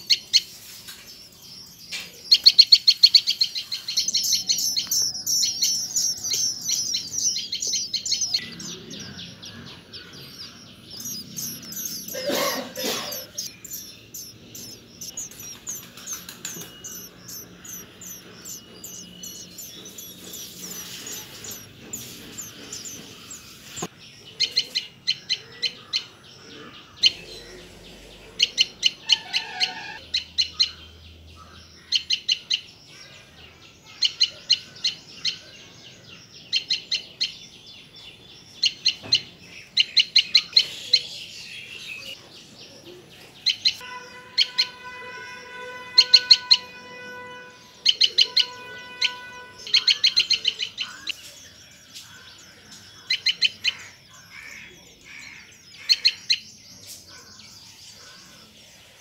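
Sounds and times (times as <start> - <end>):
bird chirping in bursts: 0.0 - 59.0.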